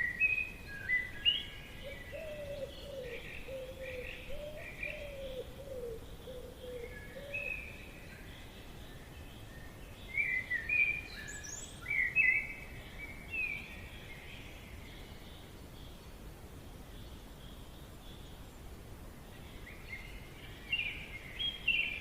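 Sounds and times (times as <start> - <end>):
low bird calls: 0.0 - 16.1
birds singing: 0.0 - 22.0
steady background hiss: 0.0 - 22.0.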